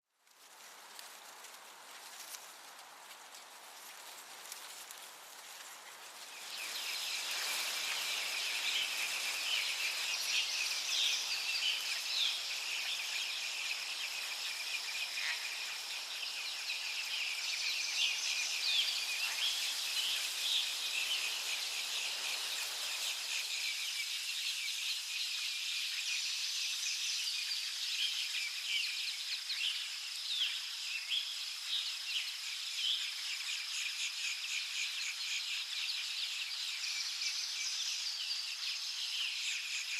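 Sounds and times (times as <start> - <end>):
insects trilling: 6.2 - 39.9.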